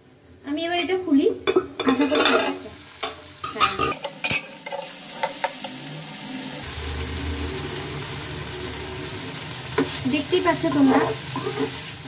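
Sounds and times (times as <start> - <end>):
vegetables sizzling in a pan: 0.2 - 12.0
lid and spatula clacking on pan: 1.4 - 5.7.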